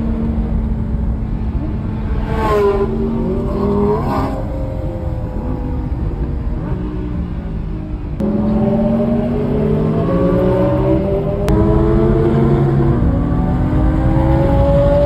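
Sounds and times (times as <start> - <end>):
car engine revving in cabin: 8.2 - 15.0.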